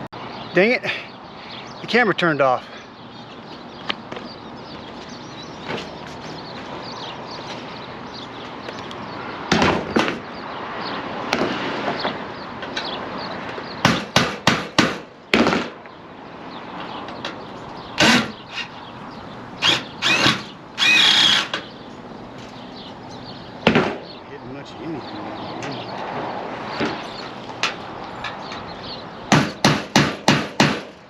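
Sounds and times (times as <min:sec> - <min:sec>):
power drill running in bursts: 0:19.6 - 0:21.5.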